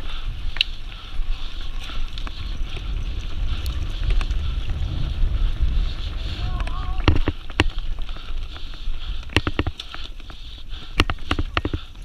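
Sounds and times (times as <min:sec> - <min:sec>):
wind buffeting microphone: 0:00.0 - 0:12.0
scattered clicks: 0:01.8 - 0:04.8, 0:06.4 - 0:12.0.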